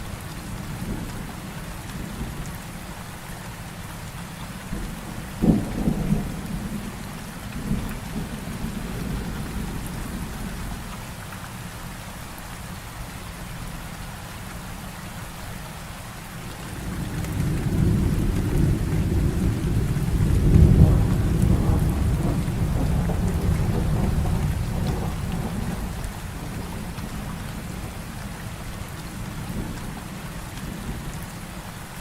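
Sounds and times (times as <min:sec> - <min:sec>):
heavy rain falling: 0:00.0 - 0:32.0
rolling thunder: 0:04.8 - 0:10.8, 0:16.6 - 0:28.0.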